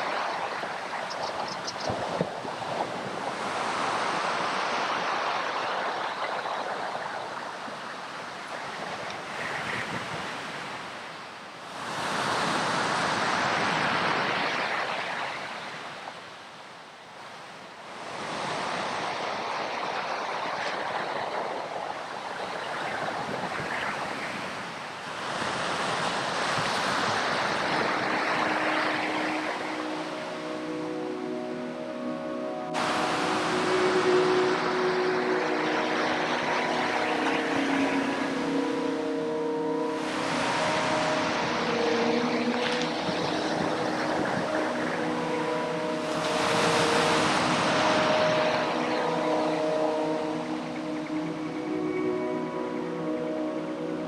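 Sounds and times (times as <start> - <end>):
waves breaking on a beach: 0.0 - 54.0.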